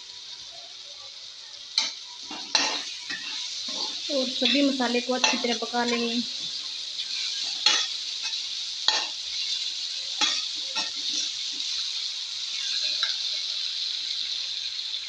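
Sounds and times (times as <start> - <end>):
food sizzling in hot oil: 0.0 - 15.0
metal spatula scraping pan: 1.8 - 9.6, 10.2 - 11.8.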